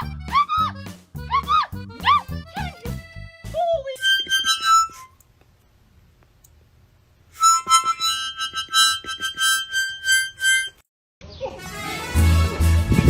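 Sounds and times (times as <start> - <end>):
harmonica playing: 0.0 - 5.2, 7.4 - 10.8.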